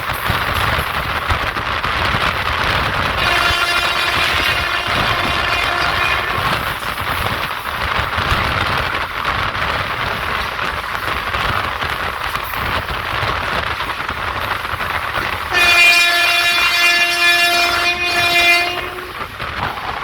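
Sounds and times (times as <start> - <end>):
passenger train rumbling: 0.0 - 20.0
locomotive horn blast: 3.2 - 6.9, 15.5 - 19.4.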